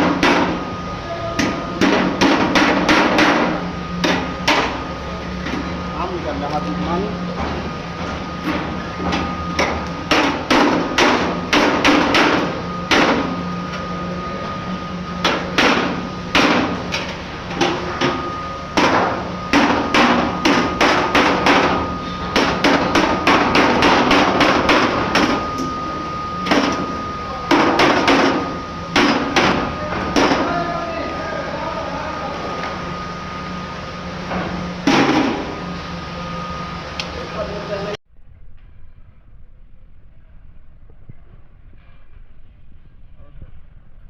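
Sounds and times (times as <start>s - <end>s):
hammer striking sheet metal: 0.0s - 0.7s, 1.4s - 4.8s, 8.5s - 13.4s, 15.2s - 25.8s, 26.4s - 30.6s, 34.8s - 35.5s.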